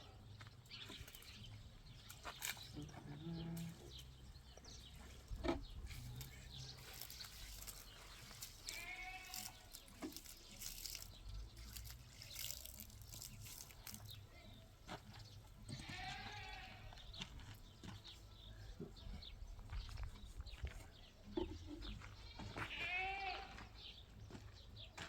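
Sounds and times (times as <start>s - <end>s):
goat or sheep bleat: 8.5s - 9.8s, 15.7s - 17.2s, 22.2s - 23.9s.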